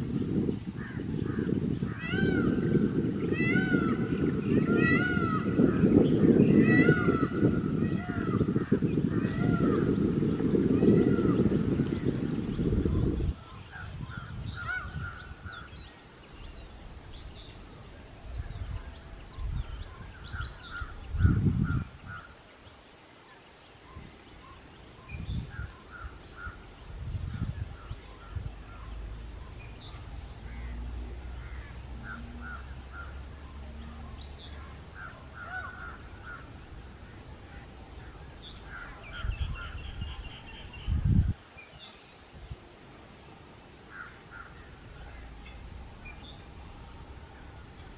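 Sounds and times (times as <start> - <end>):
birds making harsh calls: 0.8 - 16.0, 27.3 - 41.1.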